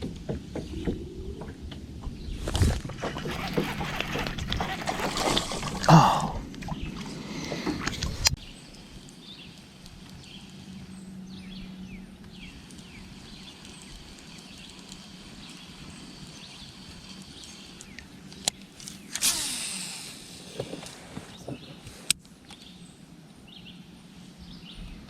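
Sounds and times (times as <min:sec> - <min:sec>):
small birds chirping: 0:08.3 - 0:19.4.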